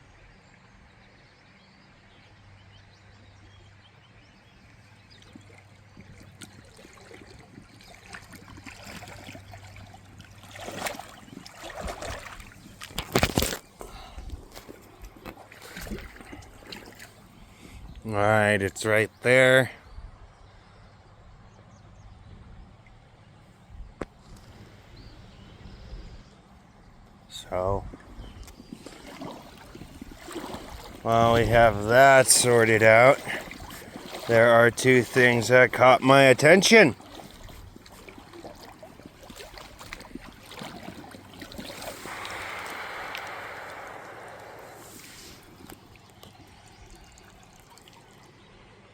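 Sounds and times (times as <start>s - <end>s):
faint creek background noise: 0.0s - 48.9s
running water splashing: 6.0s - 13.6s, 28.6s - 48.3s.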